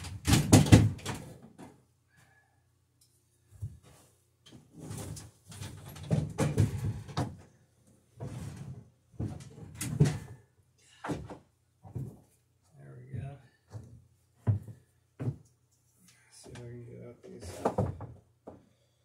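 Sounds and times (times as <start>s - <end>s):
wooden parts and tools clattering: 0.0s - 1.8s, 3.6s - 7.5s, 8.2s - 10.4s, 17.4s - 18.6s.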